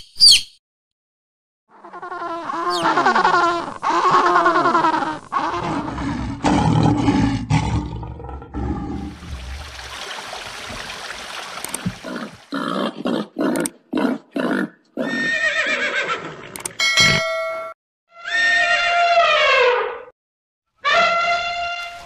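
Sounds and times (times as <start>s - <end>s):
high-pitched animal call: 1.7s - 6.1s, 14.5s - 16.2s, 18.2s - 20.1s, 20.8s - 22.0s
deep rough animal call: 1.7s - 10.9s.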